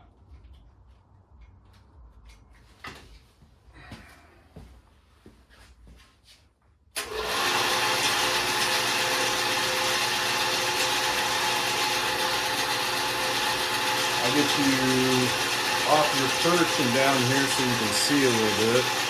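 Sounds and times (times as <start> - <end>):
band saw running: 7.0 - 19.0.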